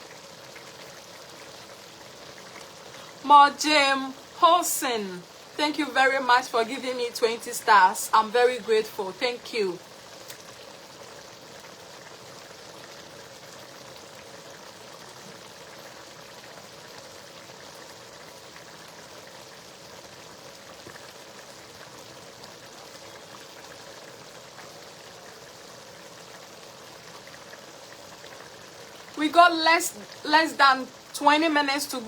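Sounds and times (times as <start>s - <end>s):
stew bubbling in a pot: 0.0s - 32.0s
small pops: 10.2s - 10.5s.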